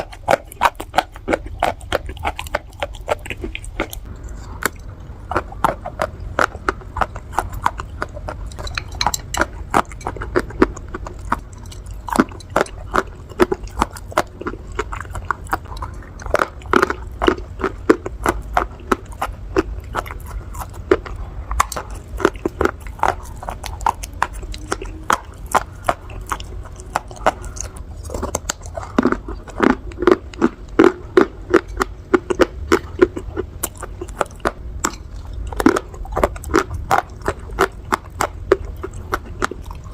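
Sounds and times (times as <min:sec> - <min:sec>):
crunching and chewing clay: 0:00.0 - 0:39.9.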